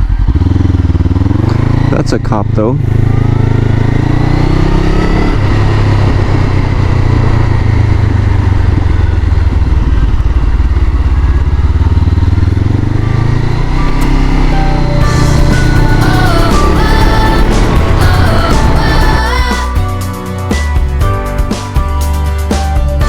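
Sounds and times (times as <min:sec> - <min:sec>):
motorcycle engine revving: 0:00.0 - 0:23.0
gear upshift: 0:12.4 - 0:19.7.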